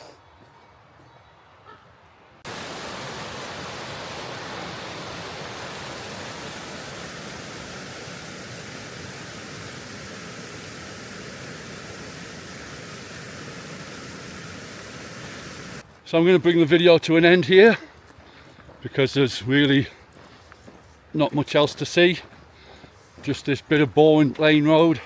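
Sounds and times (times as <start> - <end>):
running water rushing: 2.4 - 15.8.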